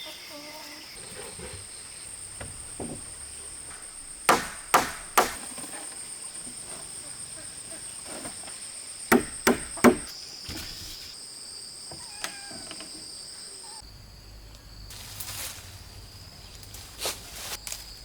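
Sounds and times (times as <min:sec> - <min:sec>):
sharp chopping strike: 0:03.8 - 0:05.4, 0:09.1 - 0:10.1.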